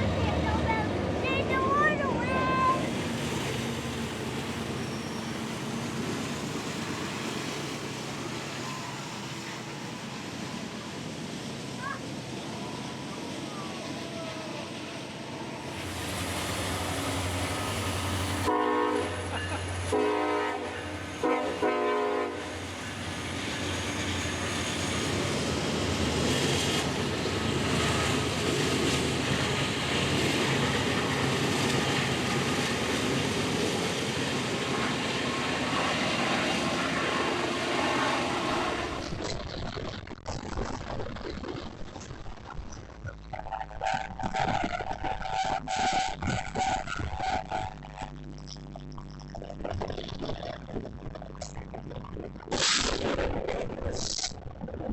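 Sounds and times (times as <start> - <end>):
train passing: 0.0 - 39.2
diesel locomotive engine rumble: 0.0 - 39.7, 42.4 - 54.6
multi-chime train horn blasts: 18.4 - 22.6.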